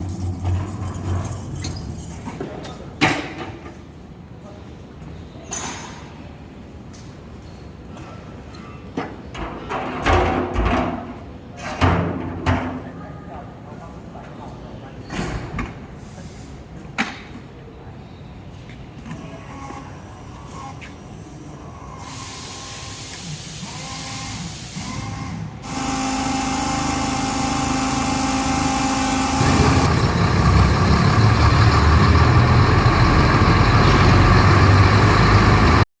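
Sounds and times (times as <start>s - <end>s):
diesel generator running: 25.6s - 35.8s.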